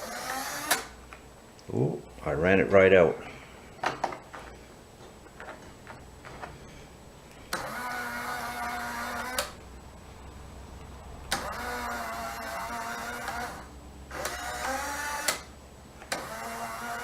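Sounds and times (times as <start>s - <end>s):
small electric motor whining: 0.0s - 1.0s, 7.5s - 9.6s, 11.3s - 15.5s, 16.1s - 17.0s.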